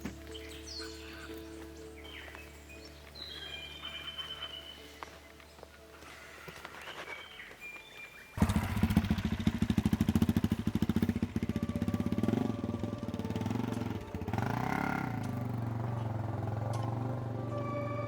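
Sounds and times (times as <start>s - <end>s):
engine revving: 8.4s - 18.0s
motorcycle engine running: 8.4s - 18.0s.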